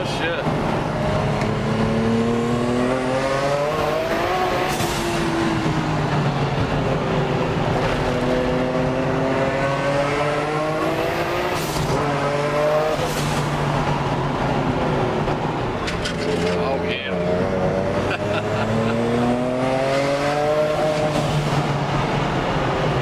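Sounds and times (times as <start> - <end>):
car engine accelerating hard: 0.0 - 23.0
gearbox upshifts: 15.8 - 18.9.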